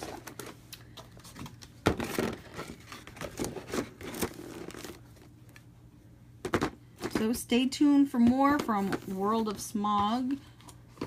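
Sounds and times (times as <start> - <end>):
packaging crinkling: 0.0 - 5.3.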